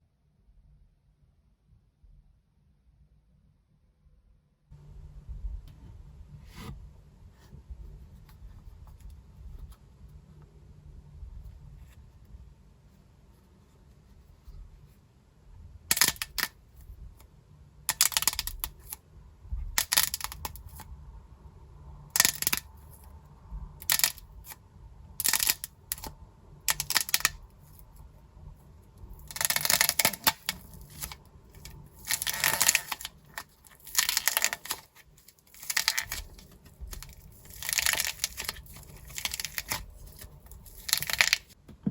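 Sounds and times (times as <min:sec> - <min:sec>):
dried clay crackling and crumbling: 0:29.0 - 0:41.9.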